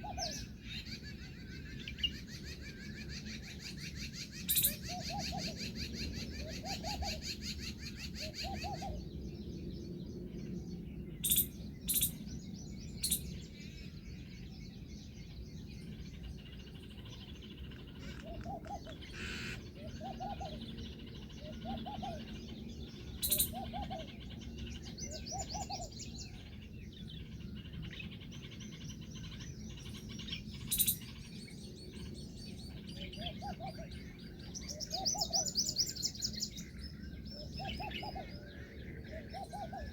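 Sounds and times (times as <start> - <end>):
birds calling low notes: 15.8 - 39.9.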